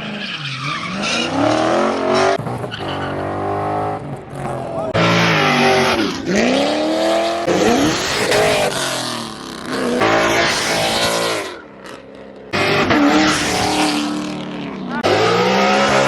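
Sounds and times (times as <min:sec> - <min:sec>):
tyre squeal: 0:00.0 - 0:03.2
car engines revving: 0:00.0 - 0:16.0.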